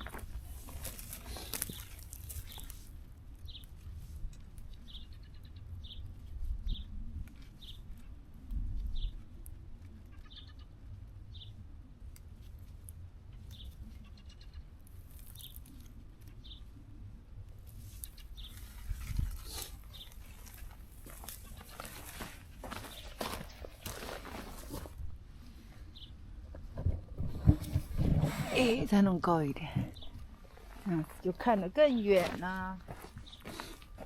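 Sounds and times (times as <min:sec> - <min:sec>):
plants rustling: 0:00.0 - 0:03.0, 0:17.7 - 0:25.1, 0:27.3 - 0:34.0
small bird chirping: 0:10.2 - 0:10.7, 0:13.4 - 0:16.7, 0:18.0 - 0:18.8
low wind rumble: 0:16.0 - 0:34.0.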